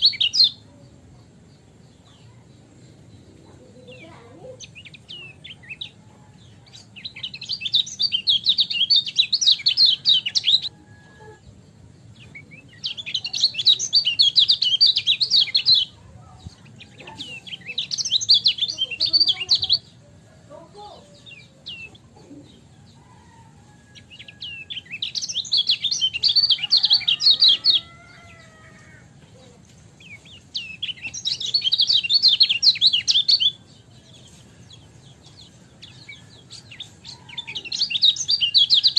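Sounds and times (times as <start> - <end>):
bird twittering song: 0.0 - 38.9.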